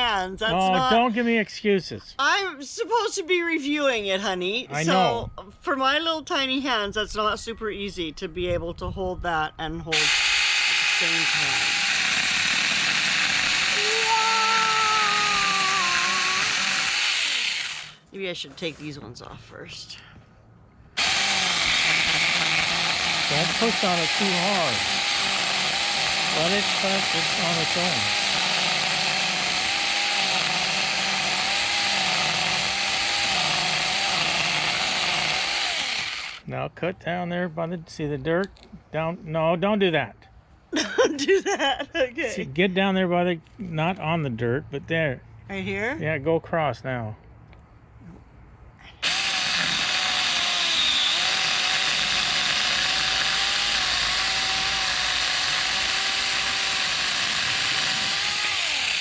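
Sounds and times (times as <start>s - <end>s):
mini chainsaw cutting wood: 9.9s - 18.0s, 21.0s - 36.4s, 49.0s - 59.0s.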